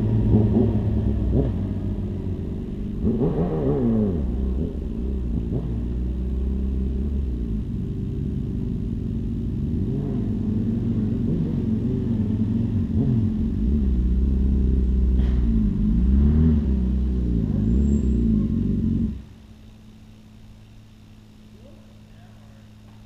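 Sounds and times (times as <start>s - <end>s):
motorcycle engines revving: 0.0s - 23.0s
faint steady hum: 16.6s - 23.0s.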